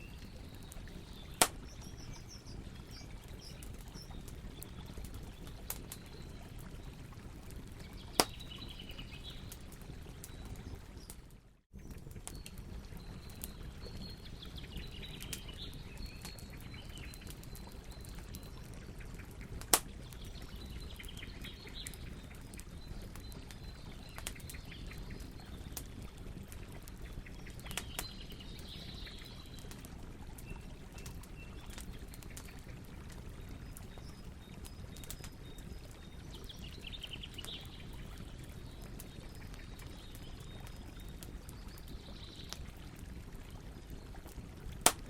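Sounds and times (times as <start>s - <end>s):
birds chirping faintly: 0.0s - 11.2s
burning wood crackling and popping: 0.0s - 45.0s
low rumble of flames: 0.0s - 45.0s.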